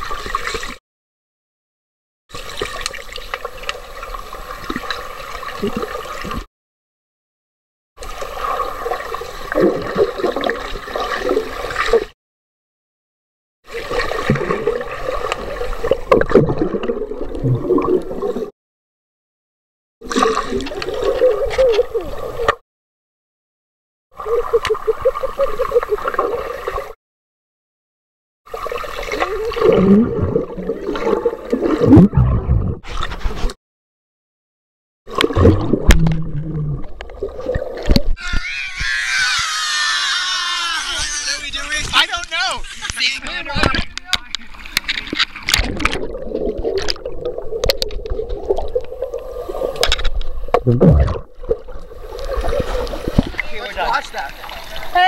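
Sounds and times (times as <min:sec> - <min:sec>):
underwater gurgling and sloshing: 0:00.0 - 0:00.8, 0:02.3 - 0:06.5, 0:08.0 - 0:12.2, 0:13.6 - 0:18.5, 0:20.0 - 0:22.6, 0:24.2 - 0:27.0, 0:28.5 - 0:33.6, 0:35.1 - 0:38.9, 0:42.6 - 0:55.0.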